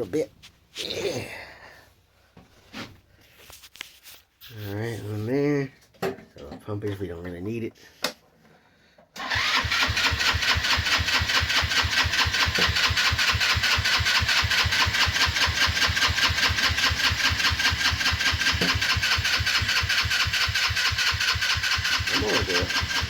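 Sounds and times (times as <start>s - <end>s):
engine cranking by starter: 9.2s - 23.0s.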